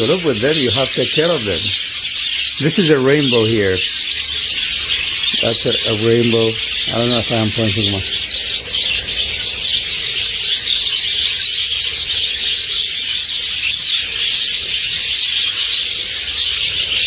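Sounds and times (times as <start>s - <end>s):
flock of budgerigars chattering: 0.0s - 17.0s.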